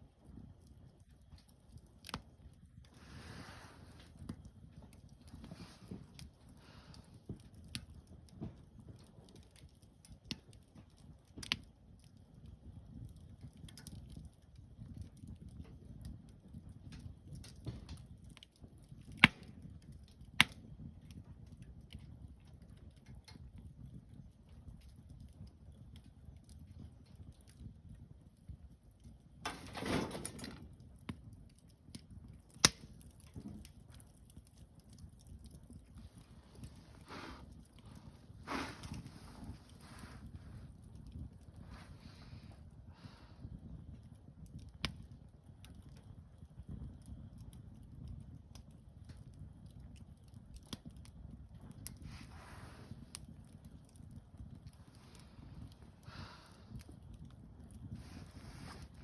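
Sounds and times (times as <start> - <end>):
campfire crackling and popping: 0.0 - 59.0
low steady rumble: 33.0 - 44.9, 51.5 - 59.0.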